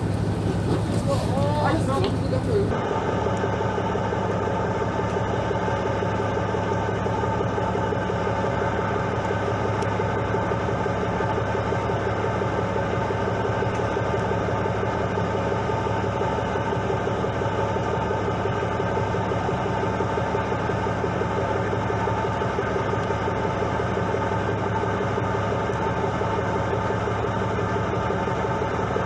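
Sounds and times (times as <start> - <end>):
boat engine running: 0.0 - 2.7.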